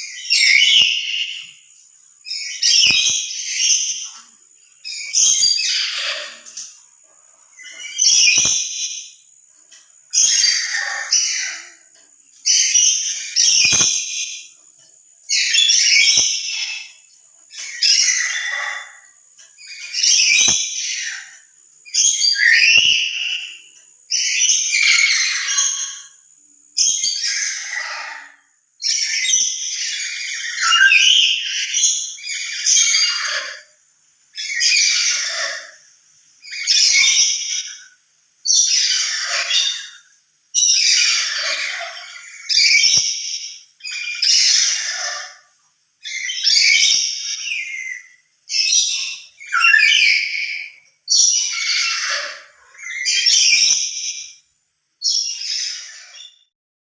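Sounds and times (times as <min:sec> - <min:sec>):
parrot giving harsh shrill calls: 0:22.1 - 0:23.6, 0:28.9 - 0:33.6, 0:40.7 - 0:54.3.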